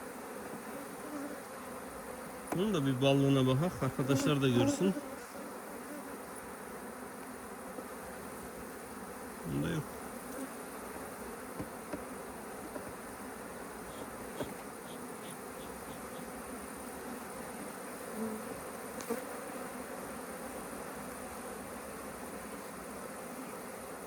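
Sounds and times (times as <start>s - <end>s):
honeybees buzzing: 0.0s - 24.0s.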